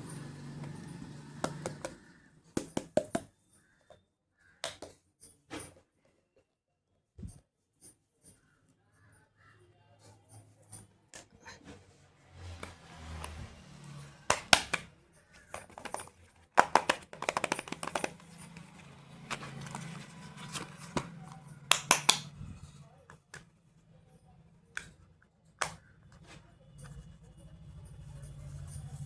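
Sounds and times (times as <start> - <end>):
plastic cases clicking: 14.3 - 22.3.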